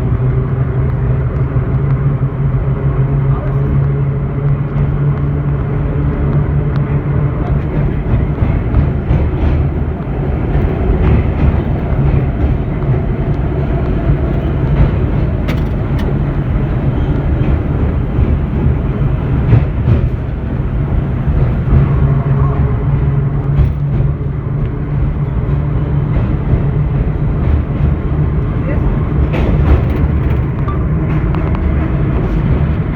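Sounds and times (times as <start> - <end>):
subway car running noise: 0.0 - 32.9
wheel clicks on track: 7.5 - 22.3, 27.8 - 31.8.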